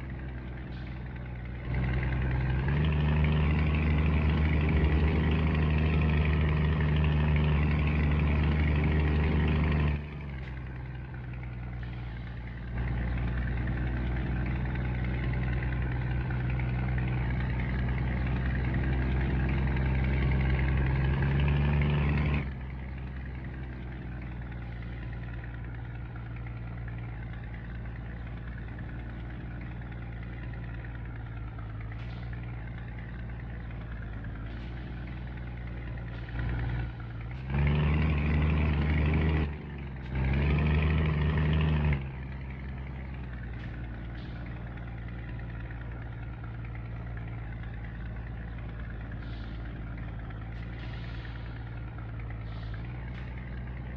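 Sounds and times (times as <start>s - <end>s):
truck diesel engine running: 0.0s - 53.9s.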